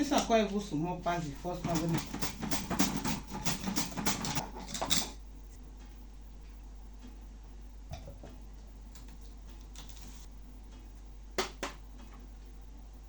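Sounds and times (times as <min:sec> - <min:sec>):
knife slicing through onion: 0:01.6 - 0:04.7.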